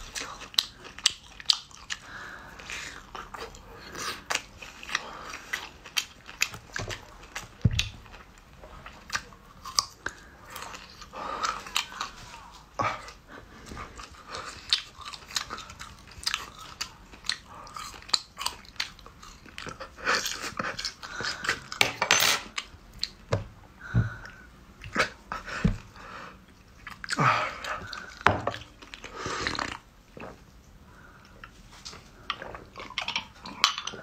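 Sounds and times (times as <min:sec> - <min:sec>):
chewing crunches: 0:00.1 - 0:21.8.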